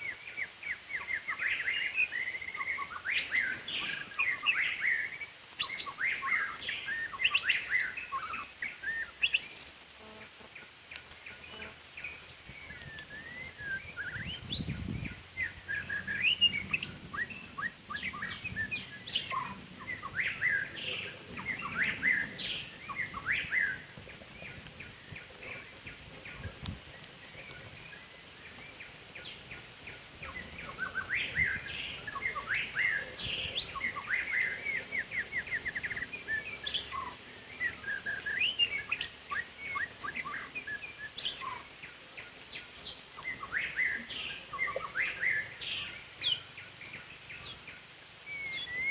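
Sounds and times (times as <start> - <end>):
bird singing chirps and whistles: 12.5 - 23.8, 30.2 - 41.6, 47.4 - 48.9.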